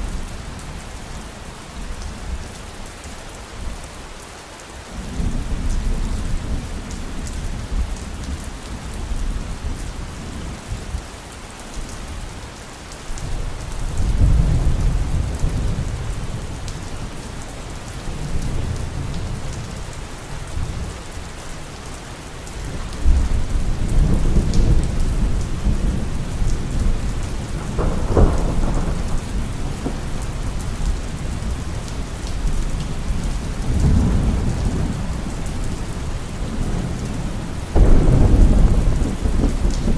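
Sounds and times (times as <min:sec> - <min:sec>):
heavy rain falling: 0:00.0 - 0:39.9
thunder rumbling: 0:22.7 - 0:39.9
sharp thunderclap: 0:23.0 - 0:31.6, 0:37.8 - 0:39.9.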